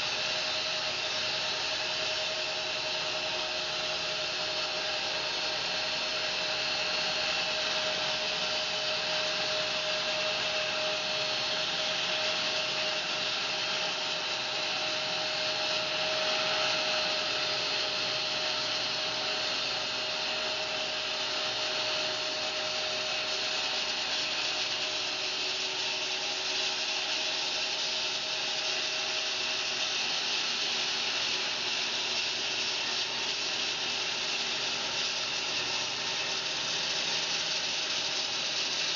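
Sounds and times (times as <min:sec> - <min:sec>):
bandsaw sawing hiss through log: 0:00.0 - 0:38.9
steady machine whine: 0:00.0 - 0:38.9.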